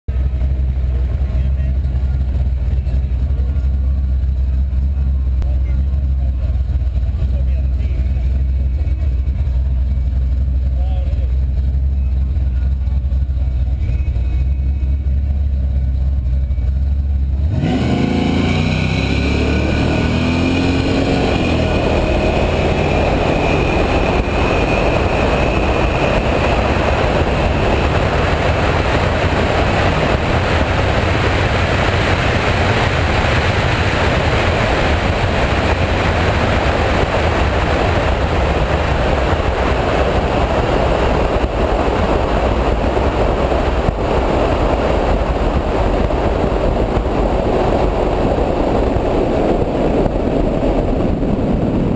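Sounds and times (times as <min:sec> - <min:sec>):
car engine revving: 0:00.1 - 0:51.9
wind noise on camera: 0:19.6 - 0:51.9.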